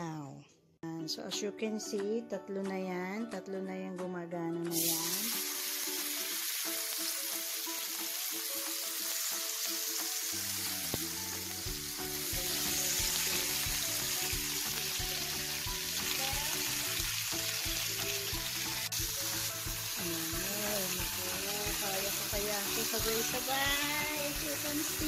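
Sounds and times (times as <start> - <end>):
background music: 0.0 - 25.0
meat sizzling on grill pan: 4.7 - 25.0.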